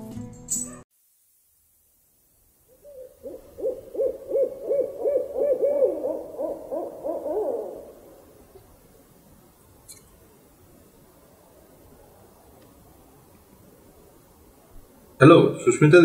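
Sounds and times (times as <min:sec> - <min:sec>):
bird hooting: 0:02.7 - 0:09.1.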